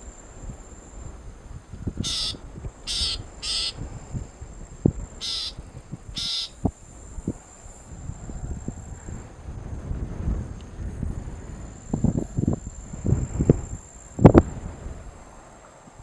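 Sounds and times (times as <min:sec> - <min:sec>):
bird harsh rasping calls: 0:02.0 - 0:03.8, 0:05.2 - 0:05.6, 0:06.2 - 0:06.6.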